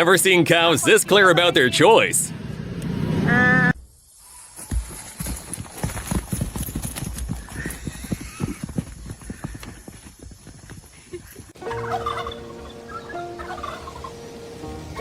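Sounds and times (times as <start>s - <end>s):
hooves clattering on hard ground: 4.6s - 12.2s.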